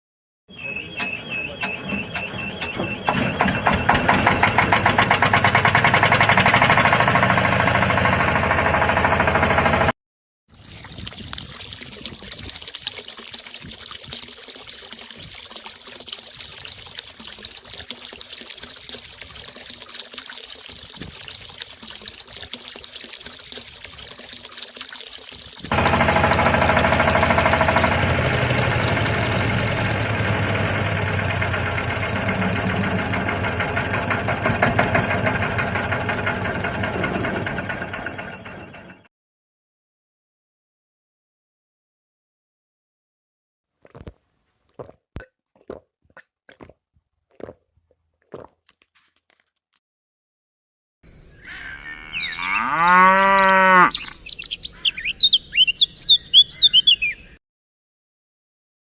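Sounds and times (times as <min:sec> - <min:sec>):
small motor rattling: 0:25.7 - 0:38.9.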